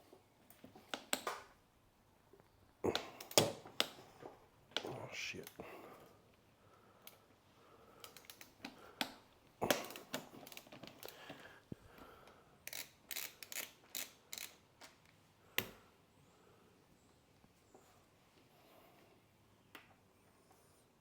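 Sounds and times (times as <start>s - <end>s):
hand tools clicking and scraping: 8.0s - 11.4s, 12.7s - 14.6s.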